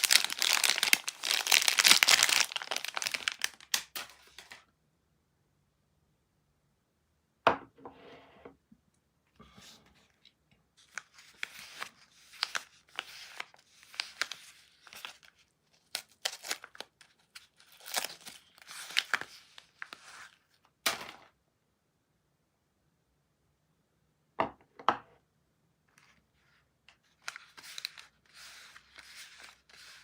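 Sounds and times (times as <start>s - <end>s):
packaging crinkling: 0.0s - 4.6s, 10.8s - 20.4s, 27.0s - 30.0s
packaging tearing: 0.0s - 4.6s, 10.9s - 20.0s.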